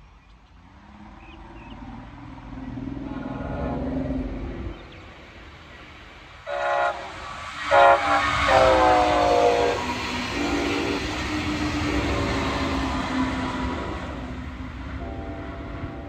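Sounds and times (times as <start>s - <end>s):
train rumble and rail noise: 0.0s - 16.0s
locomotive horn blasts: 6.5s - 12.3s.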